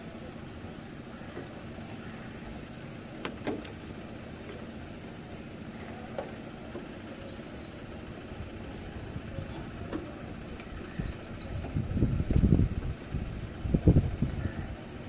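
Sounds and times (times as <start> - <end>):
storm wind: 10.8 - 15.0.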